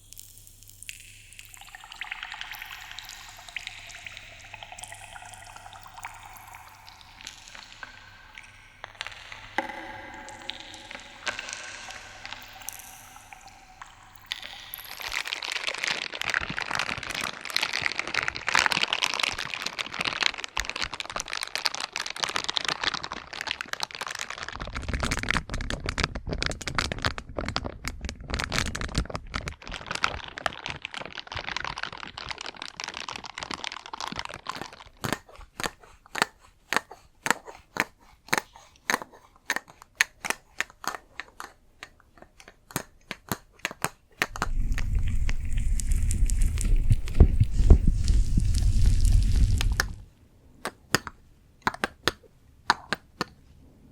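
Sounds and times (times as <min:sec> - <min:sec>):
sharp taps or clicks: 0:09.5 - 0:13.4
dense crinkling: 0:40.7 - 0:50.1.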